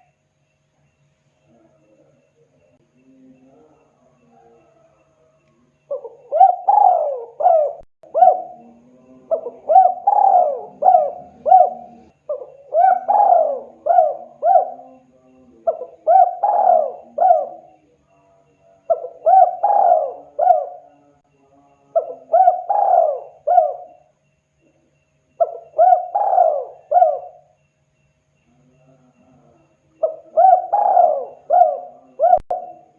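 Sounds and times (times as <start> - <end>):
dove cooing: 5.8 - 17.9, 18.9 - 21.2, 21.9 - 24.1, 25.4 - 27.6, 28.8 - 32.9.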